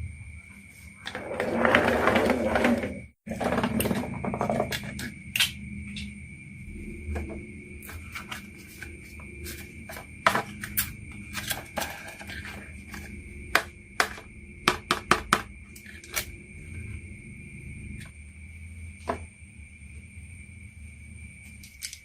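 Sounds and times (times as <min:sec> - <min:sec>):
marbles rolling on wooden track: 0:01.0 - 0:05.0.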